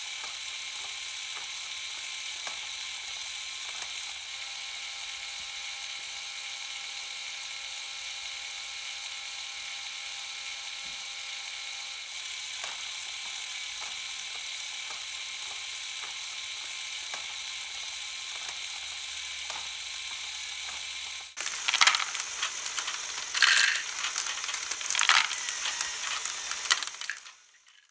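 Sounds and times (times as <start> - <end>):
motor whine: 21.4 - 27.9
rattling clatter: 21.4 - 27.9.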